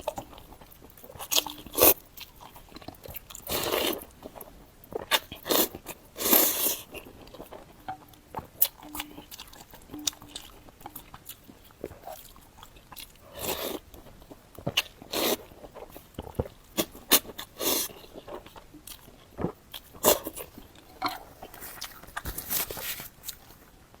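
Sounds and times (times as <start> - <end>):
chewing and biting: 0.0 - 23.6
noodle slurps: 5.0 - 7.2, 15.0 - 18.2.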